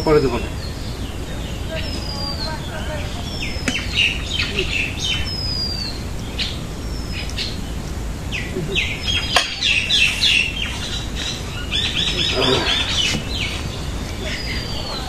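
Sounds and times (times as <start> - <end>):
small birds chirping: 0.0 - 15.0
falling bird whistle: 8.3 - 15.0.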